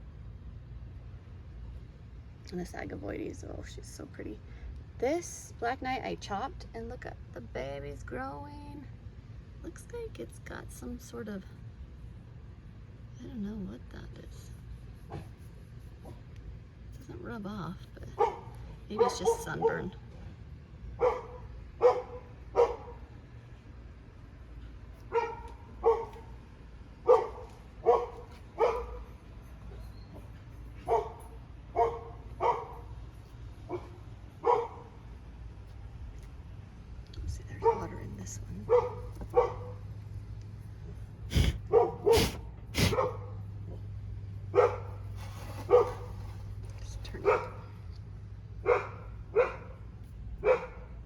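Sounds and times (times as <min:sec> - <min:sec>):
dog barking: 0:18.2 - 0:20.0, 0:21.0 - 0:23.1, 0:25.1 - 0:26.3, 0:27.0 - 0:29.1, 0:30.8 - 0:32.9, 0:33.7 - 0:35.0, 0:37.6 - 0:38.0, 0:38.7 - 0:39.8, 0:41.4 - 0:43.8, 0:44.5 - 0:44.9, 0:45.7 - 0:46.1, 0:47.2 - 0:47.7, 0:48.6 - 0:49.8, 0:50.4 - 0:51.0.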